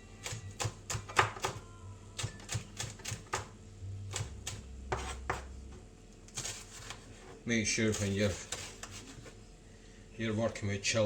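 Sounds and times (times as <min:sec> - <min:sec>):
knife chopping on a board: 0:00.2 - 0:01.6, 0:02.2 - 0:05.5.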